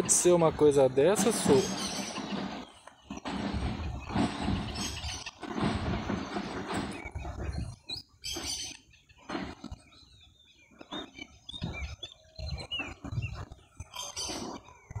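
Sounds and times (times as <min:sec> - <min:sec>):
low thuds: 0:00.0 - 0:07.8.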